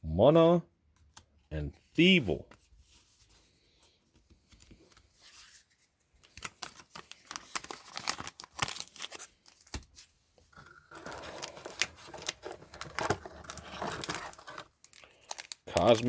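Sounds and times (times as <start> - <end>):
foil wrapper crinkling: 6.2 - 10.0, 10.9 - 16.0
foil wrapper torn open: 6.4 - 9.7, 13.4 - 16.0.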